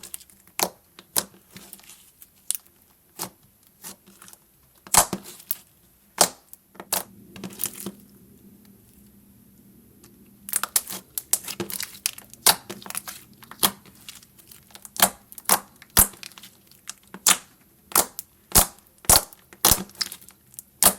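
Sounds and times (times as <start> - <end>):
slime squished by hand: 10.5 - 20.9.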